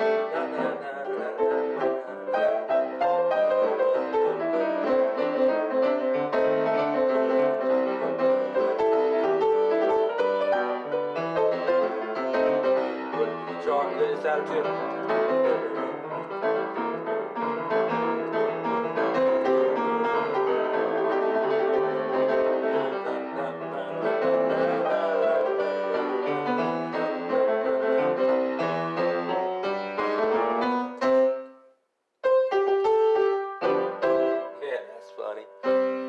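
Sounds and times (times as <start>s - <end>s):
blues piano playing: 0.0s - 36.0s
person talking: 13.2s - 16.2s, 34.6s - 35.6s.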